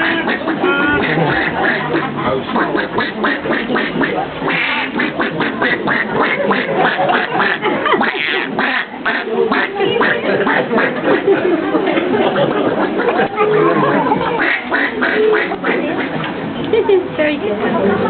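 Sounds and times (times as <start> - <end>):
man imitating duck quacks: 0.0 - 4.8.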